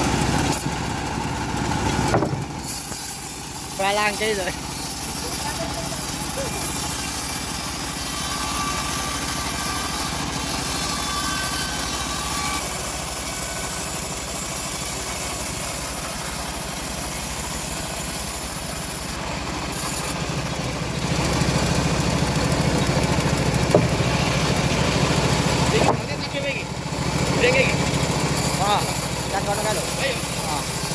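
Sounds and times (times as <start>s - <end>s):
sawmill engine running: 0.0s - 30.9s.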